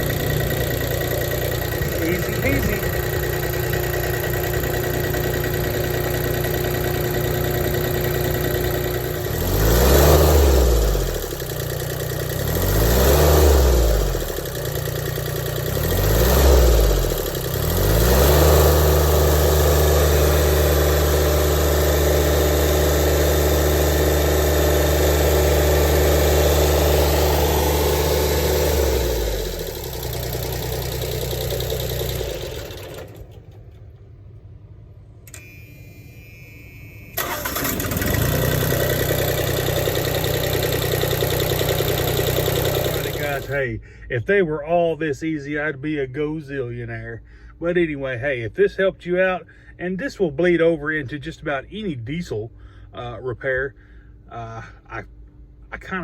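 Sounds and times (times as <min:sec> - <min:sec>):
small diesel engine idling and revving: 0:00.0 - 0:34.2, 0:37.2 - 0:44.0.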